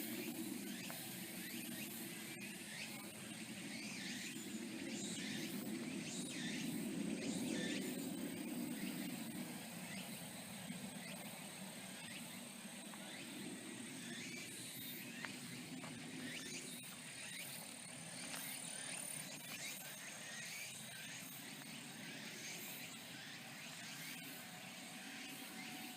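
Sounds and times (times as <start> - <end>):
insects chirping: 0.0 - 25.9.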